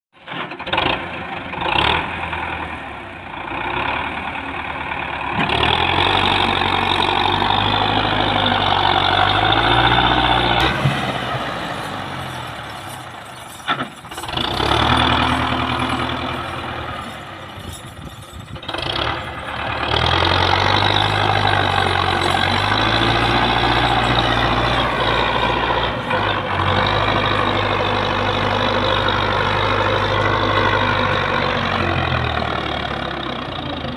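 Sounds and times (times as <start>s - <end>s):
diesel tractor engines revving: 0.2s - 33.9s.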